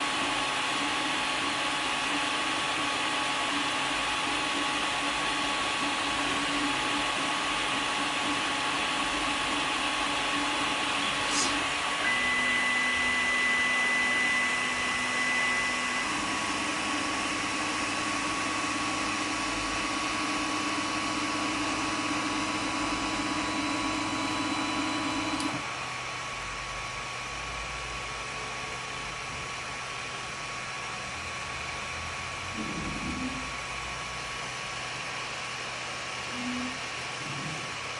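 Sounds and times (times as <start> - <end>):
printer fan hiss: 0.0 - 26.1
stepper motor whines: 2.8 - 25.8.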